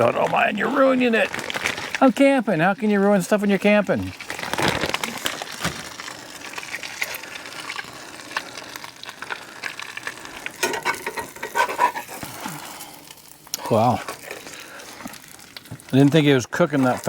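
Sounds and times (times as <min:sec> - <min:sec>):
quesadilla sizzling in a skillet: 0:00.3 - 0:17.0.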